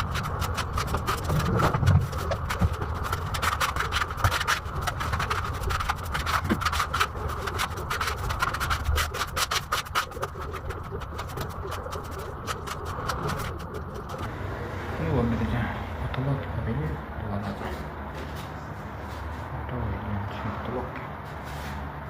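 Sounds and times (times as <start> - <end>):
putty knife scraping a wall: 0.0 - 14.3.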